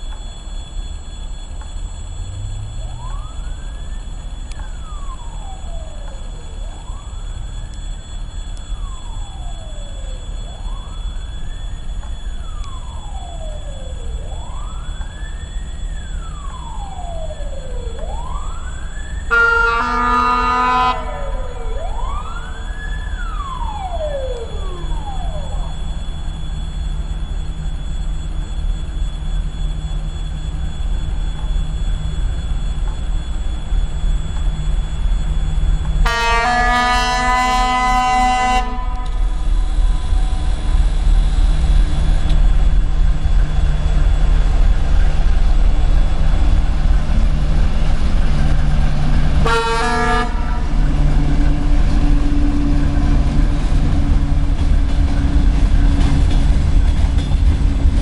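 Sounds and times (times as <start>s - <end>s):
diesel locomotive engine droning: 0.0s - 58.0s
locomotive horn: 19.3s - 22.1s, 36.0s - 39.6s, 49.4s - 52.0s.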